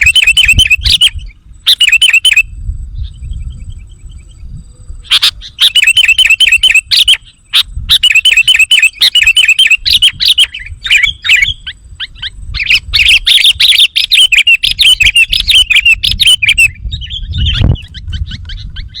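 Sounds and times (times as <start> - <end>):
rapid bird chirping: 0.0 - 19.0.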